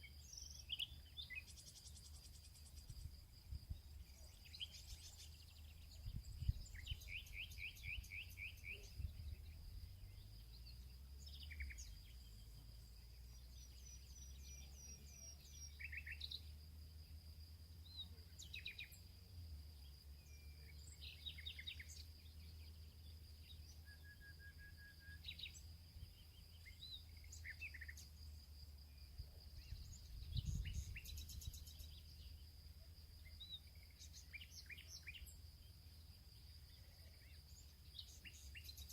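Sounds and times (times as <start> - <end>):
birds chirping: 0.0 - 16.5, 25.1 - 38.9
crickets trilling: 0.0 - 38.9.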